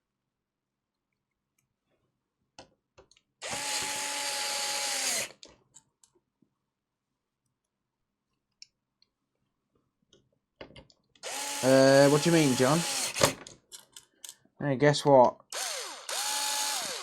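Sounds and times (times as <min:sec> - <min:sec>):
electric screwdriver whine: 0:03.4 - 0:05.4, 0:11.2 - 0:13.4, 0:15.6 - 0:17.0.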